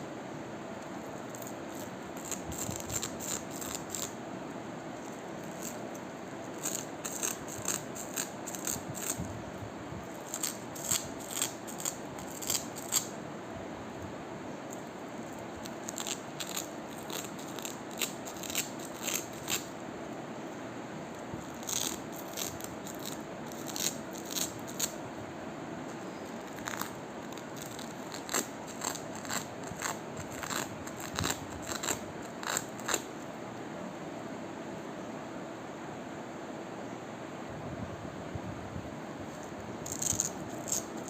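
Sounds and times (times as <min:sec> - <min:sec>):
background hiss: 0:00.0 - 0:41.0
velcro crackling: 0:15.6 - 0:19.7, 0:26.3 - 0:33.1, 0:39.4 - 0:41.0.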